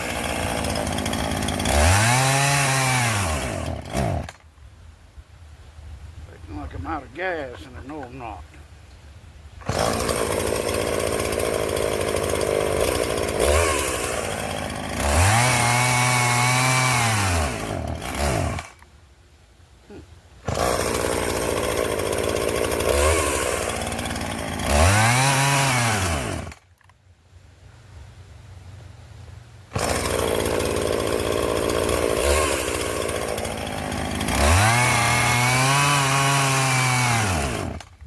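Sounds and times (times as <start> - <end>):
chainsaw revving: 0.0 - 4.4, 9.6 - 18.8, 19.9 - 26.9, 29.7 - 38.0.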